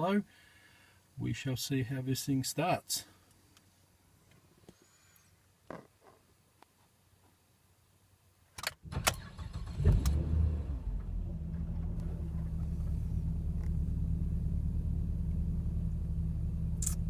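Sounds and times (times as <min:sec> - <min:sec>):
car engine cranking and starting: 0:08.6 - 0:17.0
car engine idling: 0:08.9 - 0:17.0.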